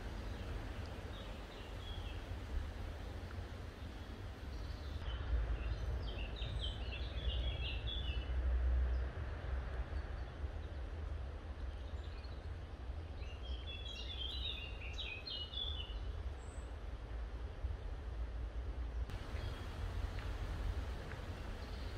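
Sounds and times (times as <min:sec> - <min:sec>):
small bird singing: 0:00.1 - 0:02.3, 0:03.8 - 0:08.2, 0:13.2 - 0:16.6, 0:19.1 - 0:19.8, 0:21.2 - 0:21.9
steady low rumble: 0:19.1 - 0:21.9.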